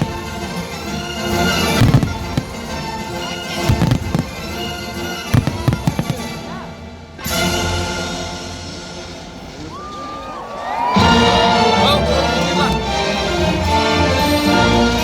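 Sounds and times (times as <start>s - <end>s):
fireworks bangs and crackles: 0.0s - 8.0s
orchestral show music: 0.0s - 15.0s.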